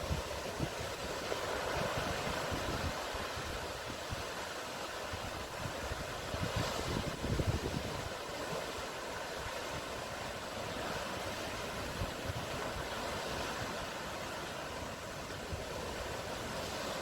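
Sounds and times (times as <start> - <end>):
sea surf washing: 0.0 - 17.0
wind thump on microphone: 6.4 - 8.1.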